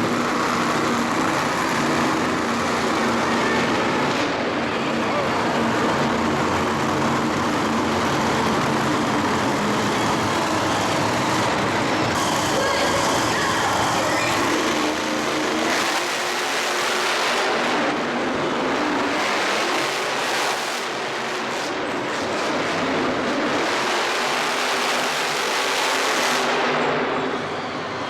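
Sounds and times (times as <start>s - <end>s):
vehicle engines roaring: 0.0s - 28.0s.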